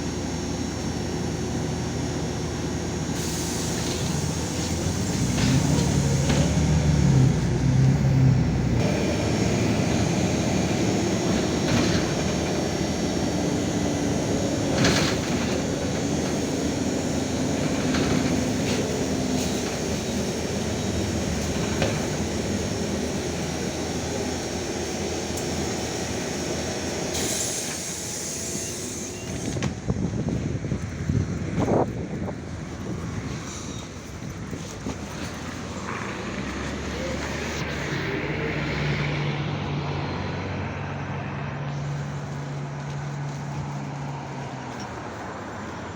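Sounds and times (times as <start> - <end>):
bus engine and road rumble: 0.0 - 45.9
air hiss: 3.0 - 7.0, 8.8 - 29.8.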